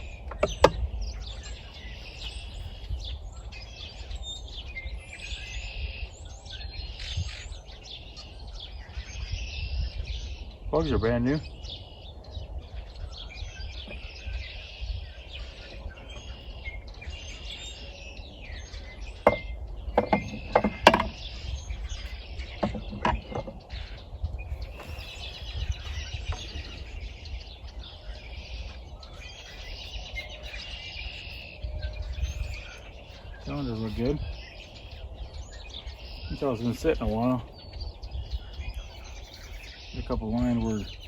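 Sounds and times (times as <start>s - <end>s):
birds chirping: 0.0s - 41.0s
steady low rumble: 0.0s - 41.0s
tools knocking and clinking: 19.2s - 21.2s, 22.6s - 23.6s.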